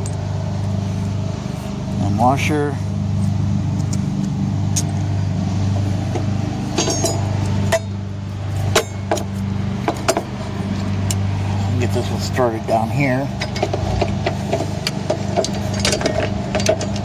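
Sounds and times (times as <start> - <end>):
steady low hum: 0.0 - 17.0
small metal clinks and clicks: 3.2 - 5.0, 6.7 - 7.9.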